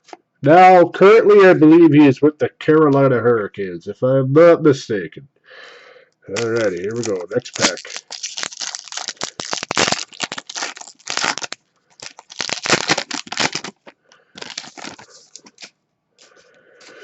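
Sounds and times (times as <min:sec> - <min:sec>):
foil wrapper tearing and crinkling: 0:06.3 - 0:17.0.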